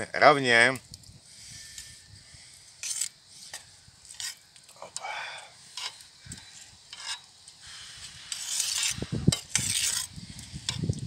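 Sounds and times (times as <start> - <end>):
rice scraping in a pot: 1.4 - 4.5, 5.6 - 11.0.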